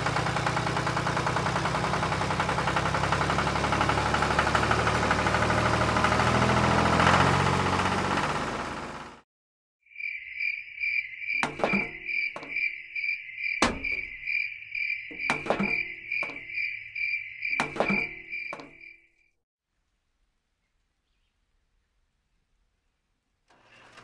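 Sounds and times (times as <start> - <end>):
high pulsing chirping: 9.9 - 19.2
tin buckets knocking on table: 11.4 - 12.5.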